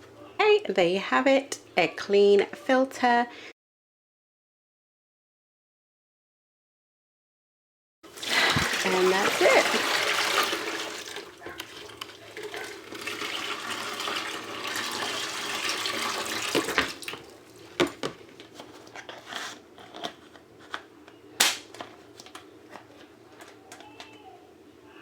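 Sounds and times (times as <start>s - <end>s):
tap water running: 8.1s - 18.2s.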